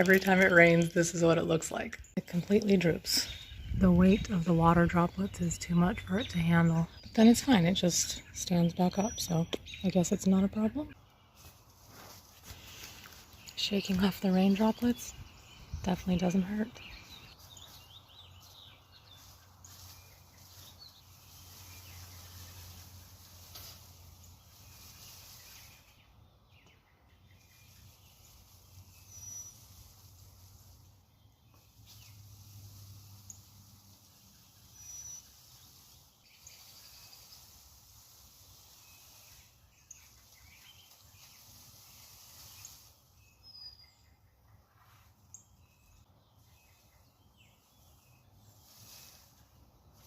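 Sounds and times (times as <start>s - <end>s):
outdoor background hiss: 0.0s - 50.0s
distant bird chirps: 12.5s - 50.0s.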